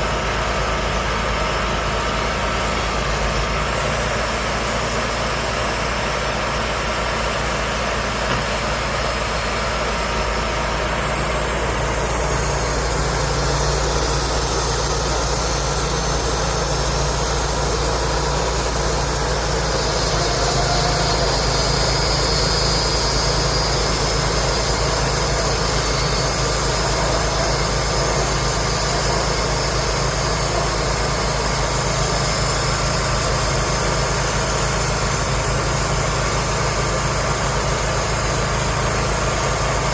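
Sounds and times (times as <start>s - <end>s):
engine running: 0.0s - 39.9s
high hiss: 10.8s - 32.4s.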